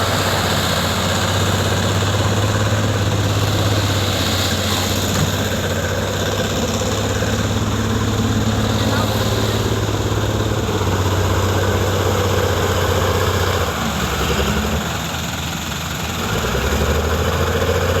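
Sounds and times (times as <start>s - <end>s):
dump truck engine running: 0.0s - 18.0s.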